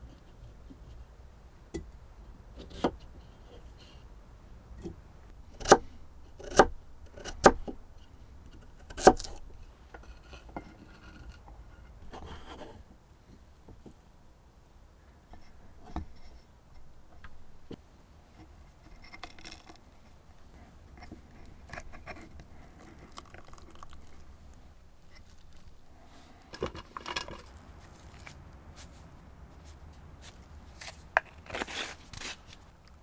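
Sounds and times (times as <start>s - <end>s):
handling rustles and knocks: 15.4s - 33.0s.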